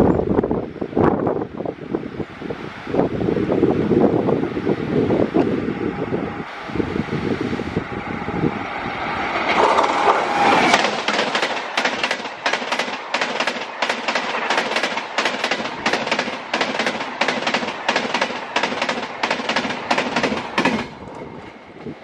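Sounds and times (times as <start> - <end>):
wind on microphone: 0.0 - 11.0, 19.7 - 22.0
approaching train rumble: 0.0 - 22.0
train rushing noise: 0.0 - 22.0
train wheels clattering on rail joints: 9.3 - 22.0.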